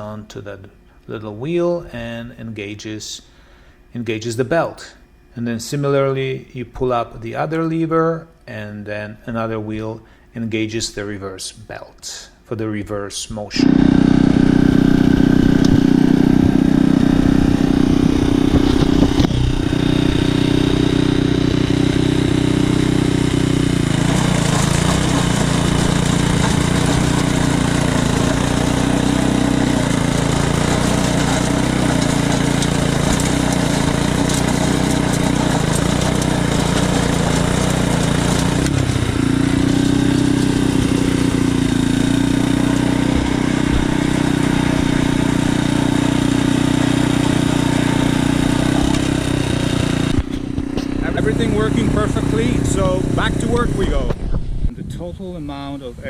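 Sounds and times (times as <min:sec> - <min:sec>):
small gasoline engine running: 0:13.6 - 0:54.2.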